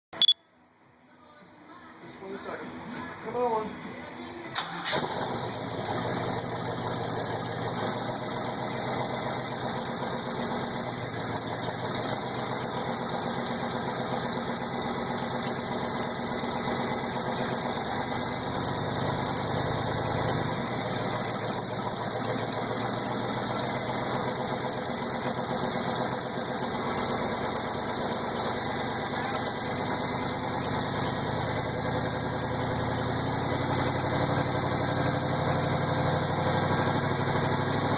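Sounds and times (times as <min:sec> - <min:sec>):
car engine starting and idling: 0:04.5 - 0:37.9.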